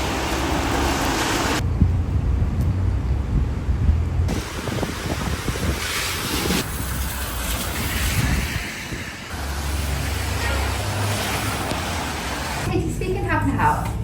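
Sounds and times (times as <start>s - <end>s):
moving vehicle rumble: 0.0s - 12.7s
wind buffeting microphone: 1.6s - 9.4s.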